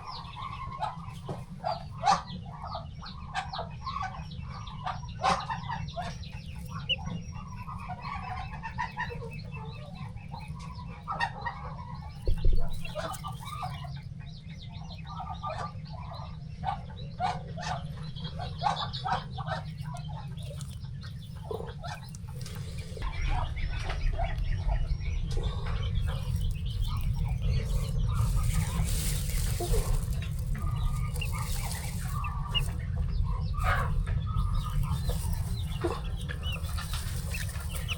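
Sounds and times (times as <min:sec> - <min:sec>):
chickens clucking: 0:00.0 - 0:37.9
steady low rumble: 0:17.8 - 0:37.9.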